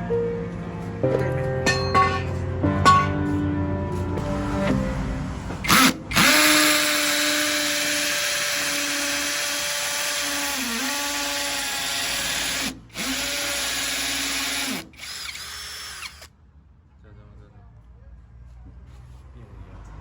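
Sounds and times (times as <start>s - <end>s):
cordless drill motor whine: 5.6s - 16.3s.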